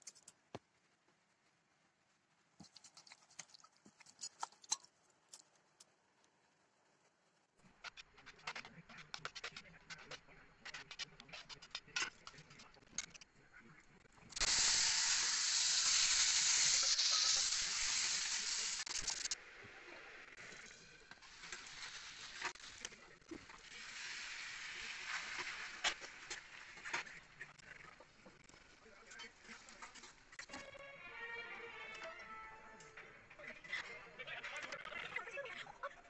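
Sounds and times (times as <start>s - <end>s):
food sizzling in hot oil: 14.4s - 19.4s, 20.6s - 22.8s, 23.5s - 26.8s.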